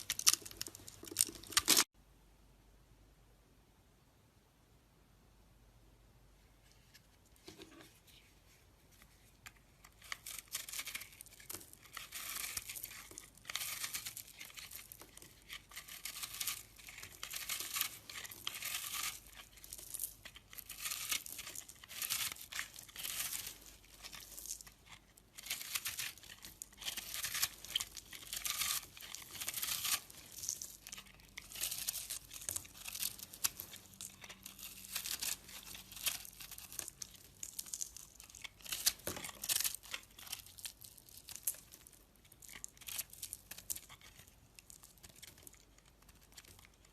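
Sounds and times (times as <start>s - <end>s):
knife scraping soap: 9.5s - 40.5s.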